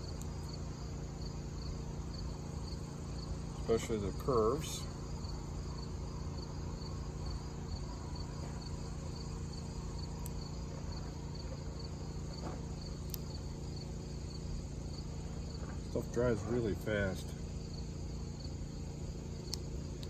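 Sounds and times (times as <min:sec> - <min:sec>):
cricket chirping: 0:00.0 - 0:20.0
steady low hum: 0:00.0 - 0:20.0
faint clicks: 0:13.0 - 0:13.3.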